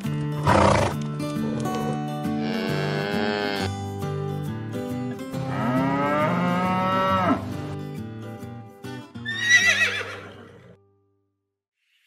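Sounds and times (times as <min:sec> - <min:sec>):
background music: 0:00.0 - 0:11.1
cow mooing: 0:02.4 - 0:03.7, 0:05.3 - 0:07.6.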